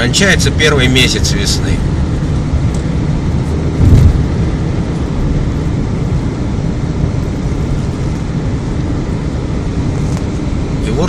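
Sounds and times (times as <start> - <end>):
engine and tyres rumbling: 0.0 - 11.0
brief loud thump: 3.8 - 4.2.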